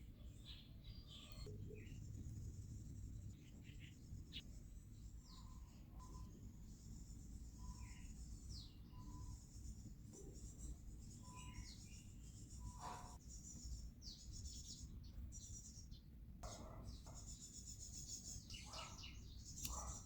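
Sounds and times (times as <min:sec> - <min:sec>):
low steady rumble: 0:00.0 - 0:11.2
faint bird chirps: 0:00.0 - 0:20.0.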